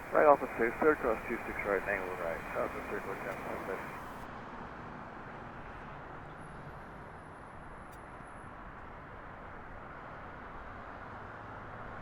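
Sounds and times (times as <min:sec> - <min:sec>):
faint high whine: 0:00.0 - 0:04.2
distant traffic hum: 0:00.0 - 0:04.3.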